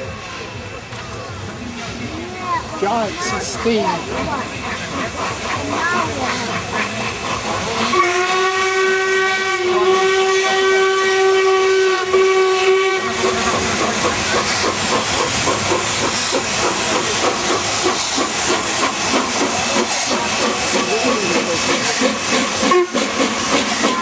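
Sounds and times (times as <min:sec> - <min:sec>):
steam hissing with fast pulsing: 0:00.4 - 0:24.0
steam locomotive whistle: 0:07.8 - 0:13.6, 0:20.3 - 0:24.0.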